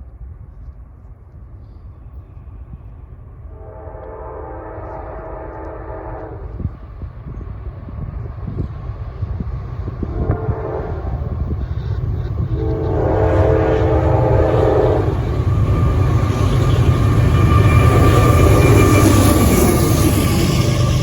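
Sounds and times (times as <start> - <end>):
train rumble: 0.0 - 21.0
locomotive air horn chord: 3.5 - 6.6, 10.0 - 11.5, 12.5 - 15.4.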